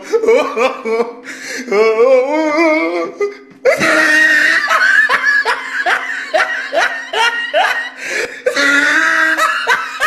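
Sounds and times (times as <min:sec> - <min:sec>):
shrill screaming laughter: 0:03.7 - 0:10.0.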